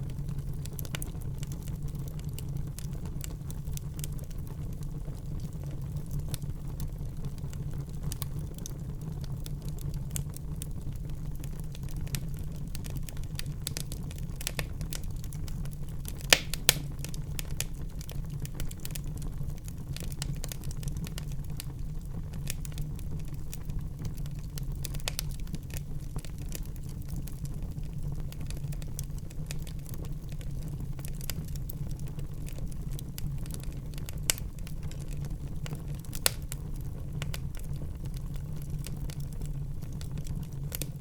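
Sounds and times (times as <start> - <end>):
wood fire crackling: 0.0 - 41.0
sharp fire pops: 12.0 - 19.1, 33.5 - 37.7.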